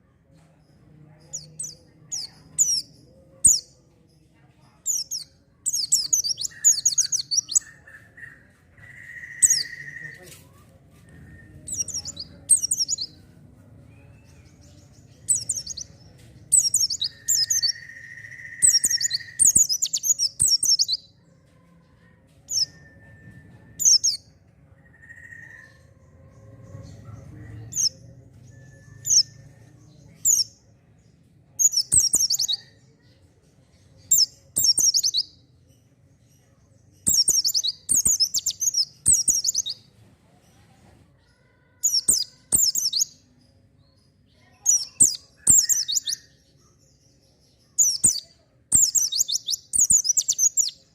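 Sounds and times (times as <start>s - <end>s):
bird twittering: 4.9s - 10.3s, 16.5s - 21.0s, 37.1s - 39.8s, 44.7s - 46.3s, 47.8s - 50.8s.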